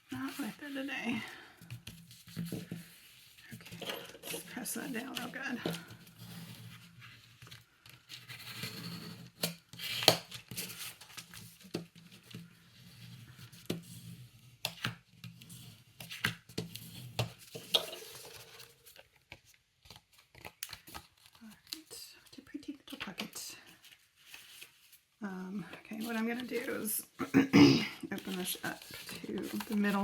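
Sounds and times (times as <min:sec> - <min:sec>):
paper rustling: 0:16.0 - 0:27.2, 0:28.0 - 0:30.0.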